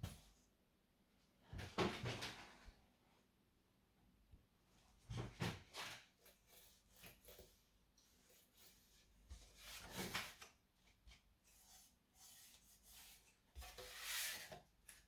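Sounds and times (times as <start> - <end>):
rubbing and scraping of handling: 5.2 - 15.0.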